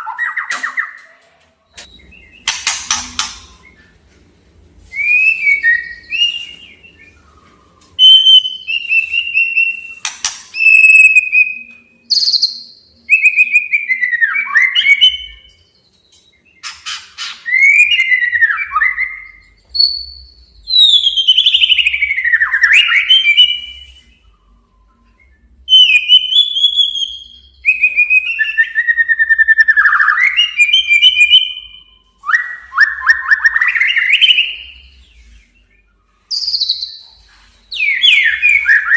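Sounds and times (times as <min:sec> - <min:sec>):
sharp bird clicking notes: 0:01.8 - 0:03.6, 0:10.0 - 0:10.8
bird singing gliding whistles: 0:04.9 - 0:38.9.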